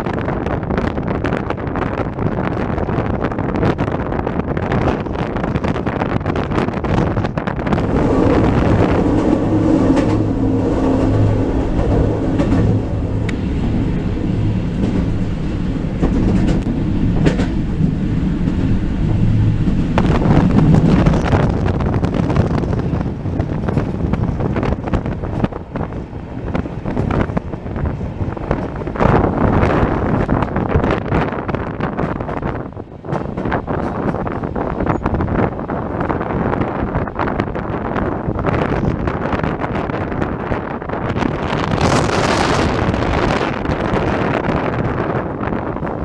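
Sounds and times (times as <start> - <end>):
train wheels rumbling on rail: 0.0 - 46.0
low drone: 7.7 - 22.0
clicks over rail joints: 15.9 - 21.2.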